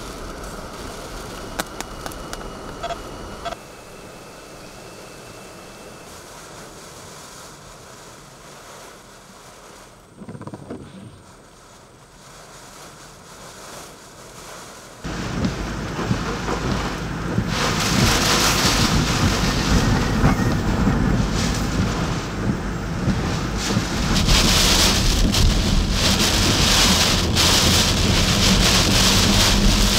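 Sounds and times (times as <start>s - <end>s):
driving rain: 0.0s - 3.6s, 6.0s - 29.9s
strong wind gusts: 15.0s - 29.9s
wind buffeting microphone: 15.0s - 29.9s.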